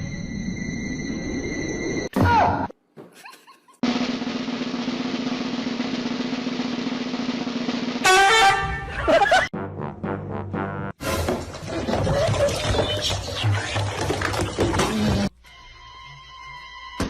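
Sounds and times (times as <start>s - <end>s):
snare drum roll: 3.8s - 8.6s.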